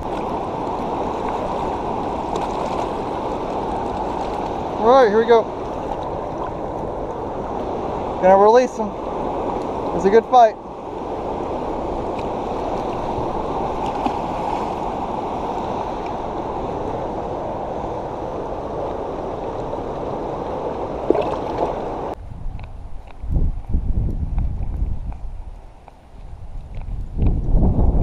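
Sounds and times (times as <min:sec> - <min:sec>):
water rushing: 0:00.0 - 0:22.2.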